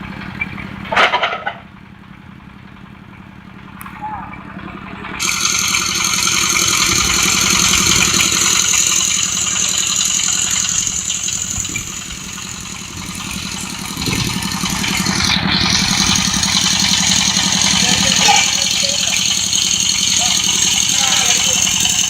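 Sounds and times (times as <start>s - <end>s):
drilling rig engine drone: 0.0s - 22.0s
rattling clatter: 0.0s - 22.0s
strong hiss: 5.2s - 22.0s.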